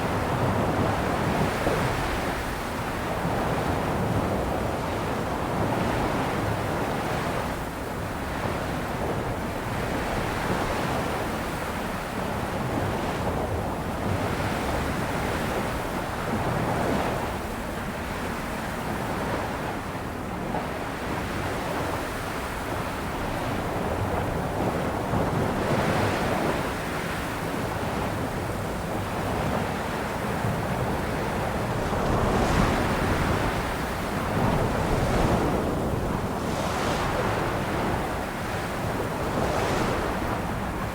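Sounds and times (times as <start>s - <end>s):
sea waves washing onto shore: 23.8s - 40.9s.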